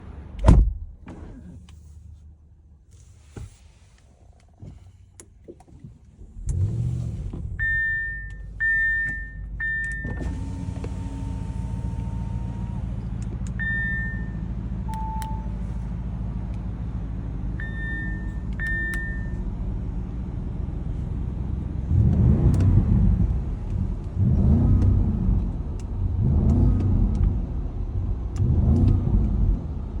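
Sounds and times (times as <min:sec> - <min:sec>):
car exhaust idling and revving: 0:06.1 - 0:30.0.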